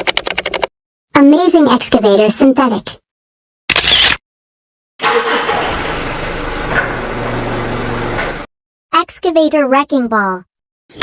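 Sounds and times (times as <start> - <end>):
heavy machinery engine running: 5.0 - 8.5.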